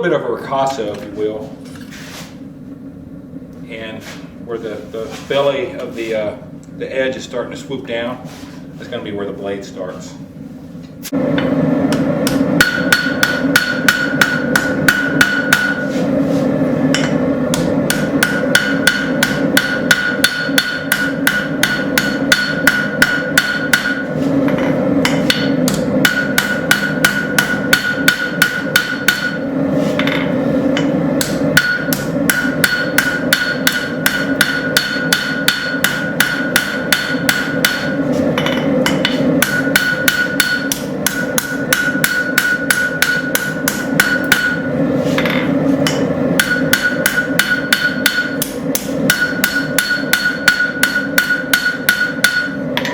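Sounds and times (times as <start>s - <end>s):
steady low hum: 0.0s - 52.9s
hammer striking metal on anvil: 11.4s - 16.0s, 16.9s - 52.9s
high metallic ringing: 11.9s - 16.0s, 16.9s - 52.9s.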